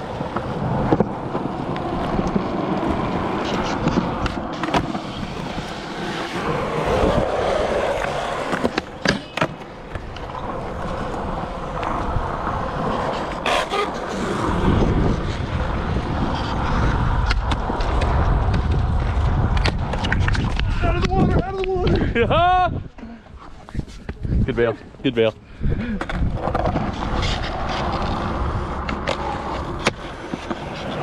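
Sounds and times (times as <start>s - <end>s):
skateboard clacks: 0.0s - 21.9s, 25.9s - 31.0s
skateboard wheels rolling on concrete: 0.0s - 31.0s.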